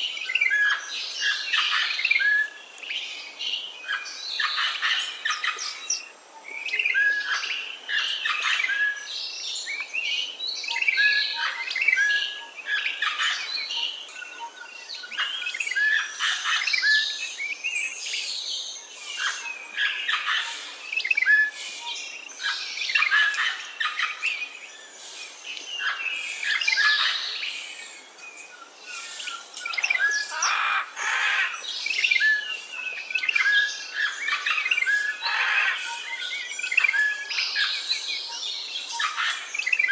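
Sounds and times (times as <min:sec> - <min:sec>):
wild birds chirping and calling: 0:00.0 - 0:39.9.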